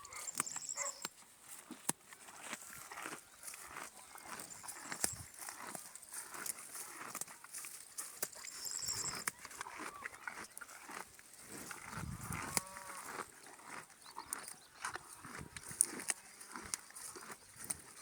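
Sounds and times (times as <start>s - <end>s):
cow mooing: 12.2s - 13.1s.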